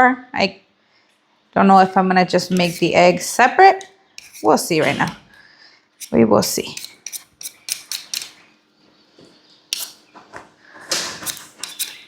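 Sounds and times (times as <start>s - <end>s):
blade scraping potatoes: 2.4s - 5.2s, 6.0s - 8.4s, 9.7s - 10.0s, 11.1s - 12.0s.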